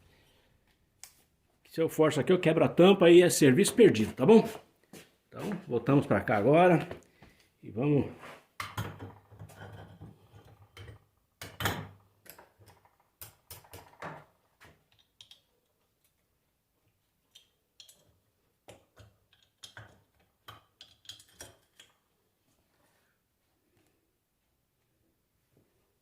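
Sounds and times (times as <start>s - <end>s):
metal tools clicking and knocking: 17.3s - 22.0s.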